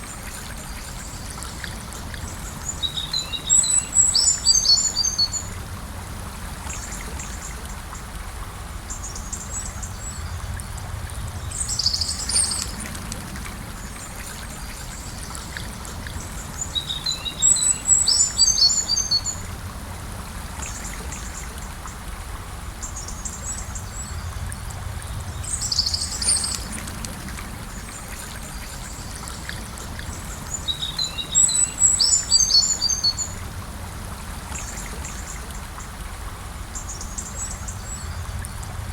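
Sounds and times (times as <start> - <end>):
songbirds singing: 0.0 - 5.6, 8.9 - 19.6, 22.8 - 33.6
river flowing: 0.0 - 38.9.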